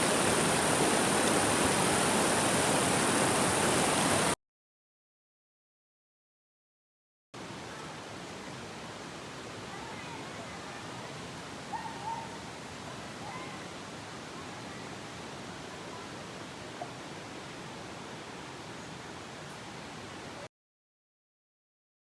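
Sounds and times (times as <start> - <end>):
steady outdoor rushing noise: 0.0 - 4.4.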